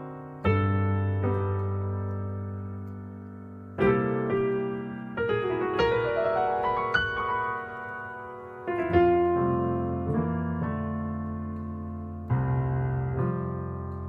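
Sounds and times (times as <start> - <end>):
piano playing jazz chords: 0.0 - 14.0.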